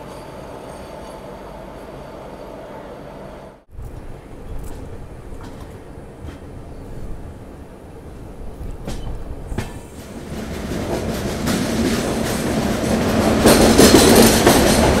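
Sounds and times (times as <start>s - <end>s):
train running on track: 0.0s - 15.0s
wheels clacking over rail joints: 3.8s - 7.2s, 8.2s - 15.0s.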